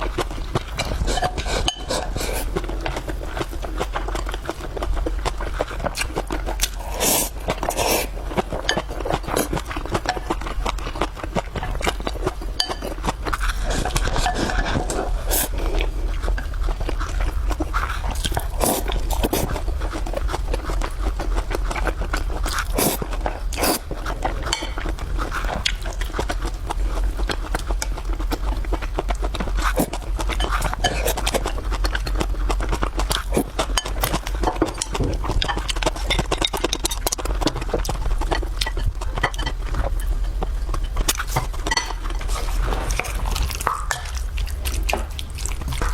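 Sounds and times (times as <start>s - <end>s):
constant low hum: 0.0s - 45.9s
person chewing noisily: 0.0s - 45.9s
scrape: 0.8s - 2.5s, 6.8s - 8.1s, 13.3s - 15.9s, 42.2s - 43.4s.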